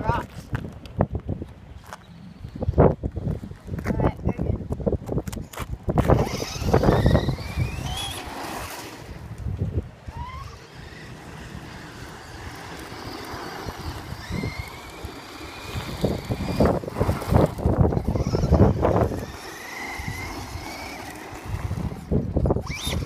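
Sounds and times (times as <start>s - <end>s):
tyres on gravel: 0.0s - 23.0s
wind buffeting microphone: 0.0s - 23.0s
electric motor whining: 6.0s - 23.0s.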